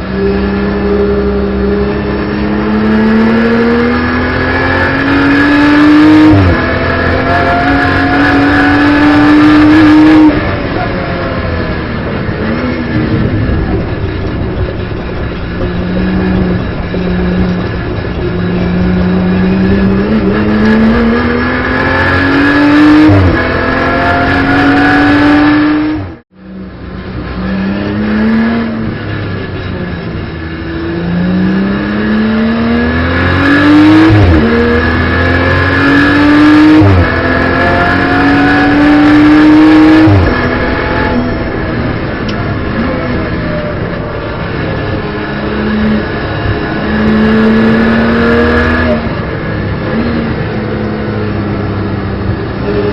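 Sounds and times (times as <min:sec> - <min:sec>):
car engine accelerating hard: 0:00.0 - 0:52.9.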